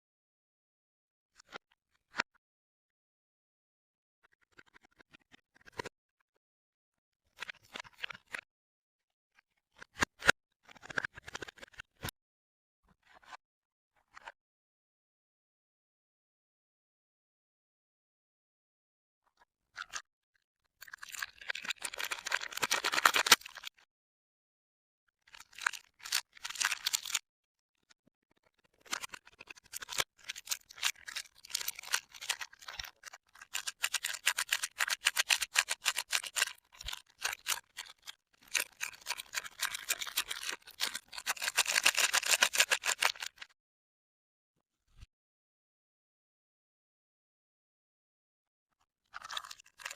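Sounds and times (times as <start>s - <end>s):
packaging crinkling: 21.1s - 23.6s, 29.7s - 37.9s, 38.5s - 43.4s.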